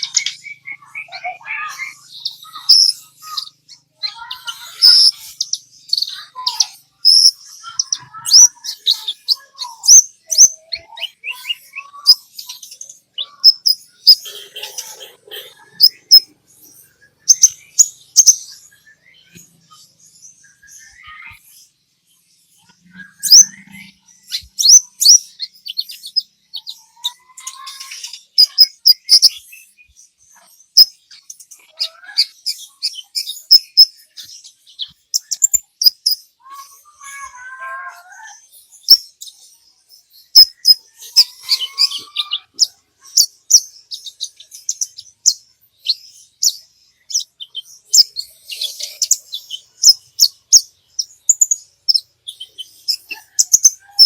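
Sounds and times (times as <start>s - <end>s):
sunbird chirping and trilling: 0.0s - 54.0s
gliding whistled bird phrases: 20.3s - 21.4s, 22.6s - 29.9s.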